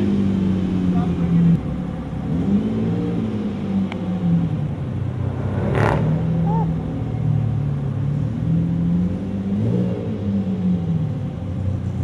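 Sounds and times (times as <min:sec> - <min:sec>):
car engine running: 0:00.4 - 0:09.2.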